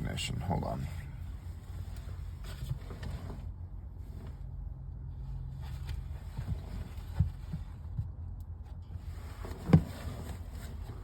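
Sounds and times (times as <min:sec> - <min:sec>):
car low hum: 0:00.0 - 0:11.0.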